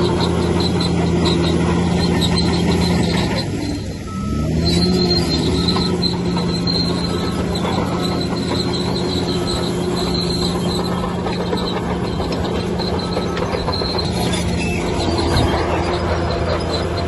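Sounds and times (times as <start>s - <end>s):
bulldozer diesel engine running: 0.0s - 17.0s
metallic squeal of steel tracks: 0.0s - 17.0s.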